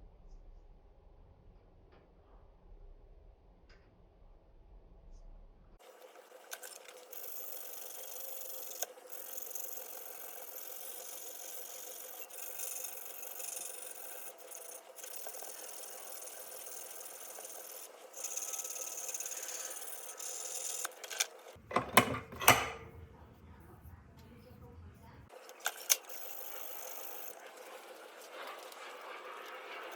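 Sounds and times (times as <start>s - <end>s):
metal knocks and clatters: 21.7s - 22.9s.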